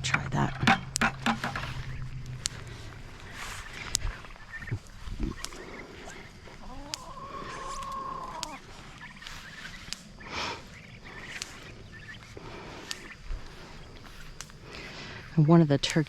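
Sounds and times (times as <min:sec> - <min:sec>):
light clicks: 0:00.8 - 0:16.0
poultry call: 0:01.2 - 0:09.6.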